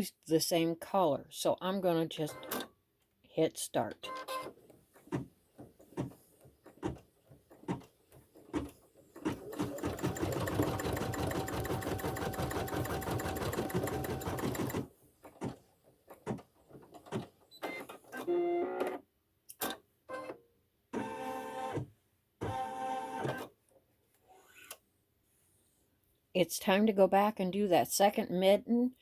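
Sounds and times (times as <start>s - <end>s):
embroidery machine stitching: 8.5s - 15.6s.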